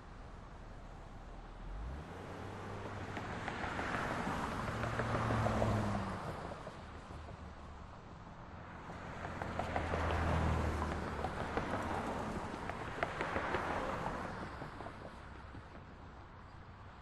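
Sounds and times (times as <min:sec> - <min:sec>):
traffic background: 0:00.0 - 0:17.0
vehicle passing: 0:08.6 - 0:15.4.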